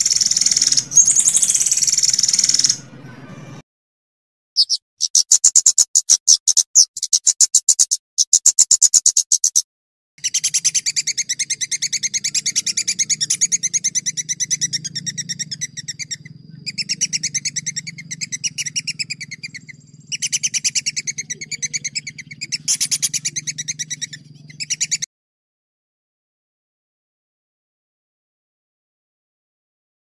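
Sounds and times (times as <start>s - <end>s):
songbird trilling: 0.0s - 3.1s, 4.6s - 9.6s, 10.2s - 25.1s.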